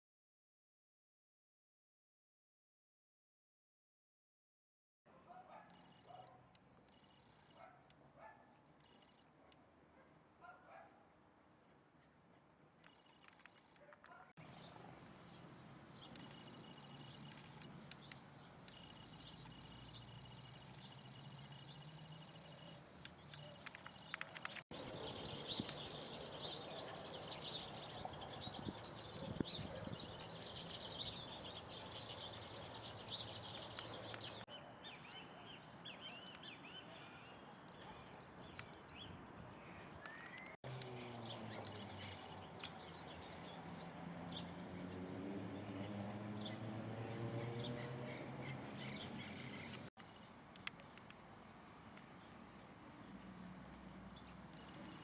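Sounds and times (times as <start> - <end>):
birds chirping and calling: 5.3 - 9.6, 14.1 - 50.2.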